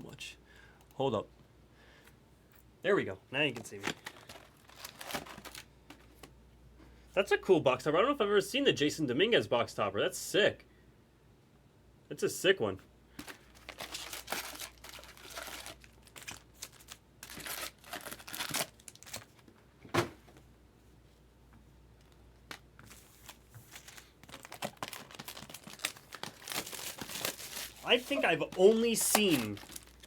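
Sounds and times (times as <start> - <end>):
wrappers crinkling and tearing: 3.6 - 5.7, 13.2 - 19.4, 22.9 - 30.0.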